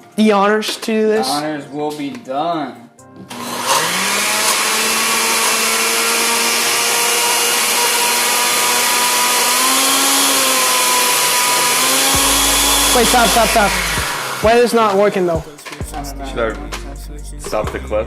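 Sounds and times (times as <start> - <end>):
electric blender running: 3.3 - 15.0.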